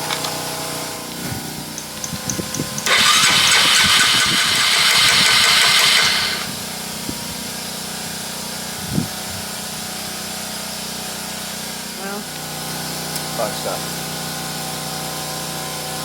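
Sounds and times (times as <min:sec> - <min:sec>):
engine cranking: 0:01.8 - 0:06.6.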